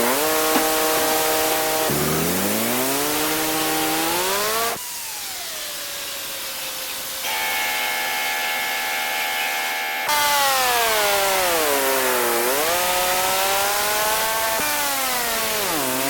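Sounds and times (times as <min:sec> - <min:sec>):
car wash motors whining: 0:00.0 - 0:09.1.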